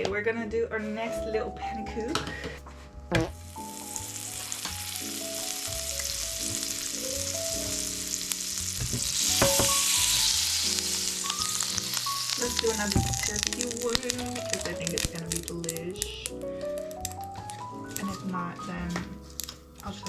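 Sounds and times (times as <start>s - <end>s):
batter sizzling in frying pan: 3.3s - 18.3s
knock: 8.8s - 9.8s.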